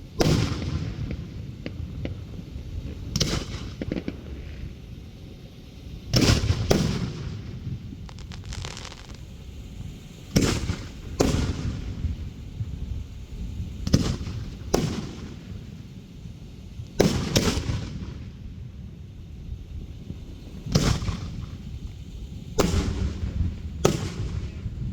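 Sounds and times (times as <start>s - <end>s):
fireworks bangs: 6.2s - 12.2s
faint crackle: 6.3s - 11.2s.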